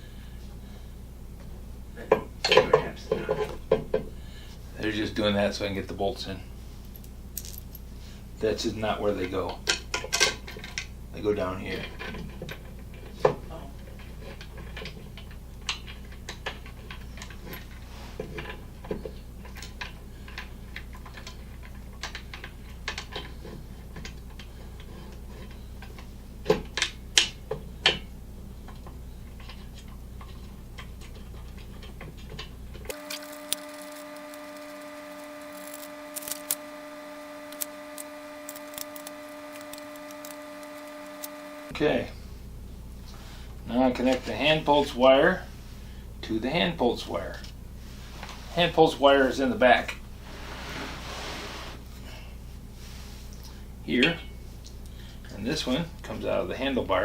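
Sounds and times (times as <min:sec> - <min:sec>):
steady background hum: 0:00.0 - 0:57.0.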